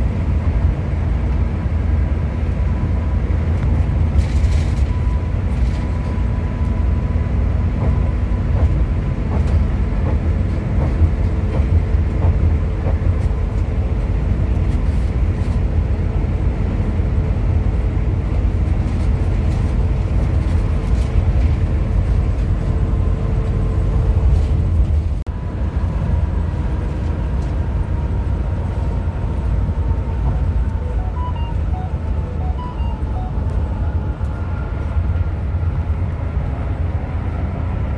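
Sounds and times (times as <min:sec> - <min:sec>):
coach engine and road rumble: 0:00.0 - 0:37.9
faint steady tones: 0:30.7 - 0:34.4.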